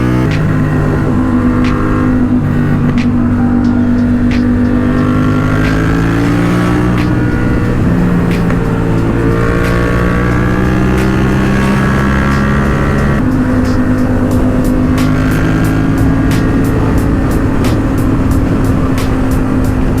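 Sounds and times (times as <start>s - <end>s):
motorcycle engine cruising: 0.0s - 20.0s.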